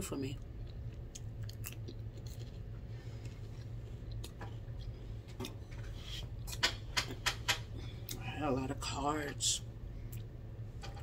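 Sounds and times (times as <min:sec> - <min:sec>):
low hum: 0:00.0 - 0:11.0
person chewing food: 0:00.4 - 0:08.2.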